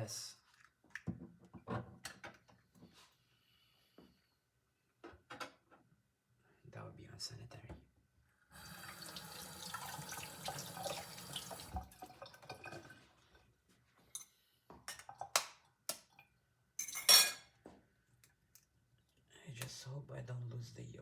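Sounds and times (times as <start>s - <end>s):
kitchen tap running: 8.6s - 13.1s.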